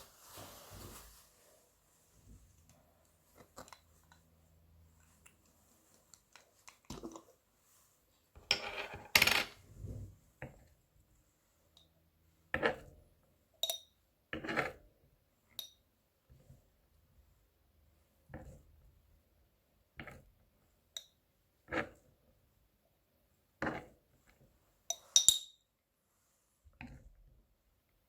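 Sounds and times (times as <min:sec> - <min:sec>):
metallic clink: 0:24.9 - 0:25.6.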